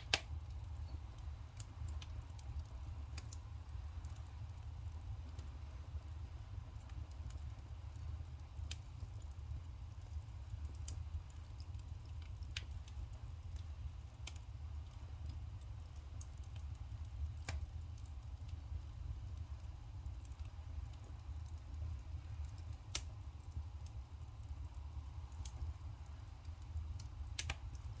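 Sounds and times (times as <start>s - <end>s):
sharp pops of fire: 0.0s - 4.4s, 14.2s - 18.6s, 20.1s - 24.0s, 25.1s - 28.0s
firewood crackling: 0.0s - 28.0s.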